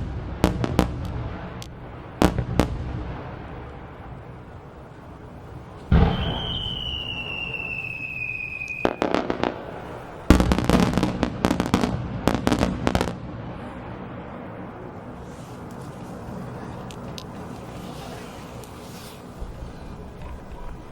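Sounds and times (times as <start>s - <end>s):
firework whistling: 0.0s - 13.9s, 14.7s - 20.1s
firework booms: 0.0s - 20.2s
rapid crackling reports: 0.6s - 6.4s, 13.4s - 20.9s
sharp cracks: 5.8s - 13.7s.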